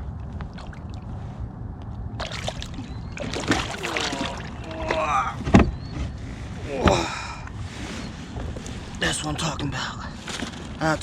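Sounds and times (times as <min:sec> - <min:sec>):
water splashing and sloshing: 0:00.0 - 0:01.4, 0:02.1 - 0:05.7
steady low rumble: 0:00.0 - 0:11.0.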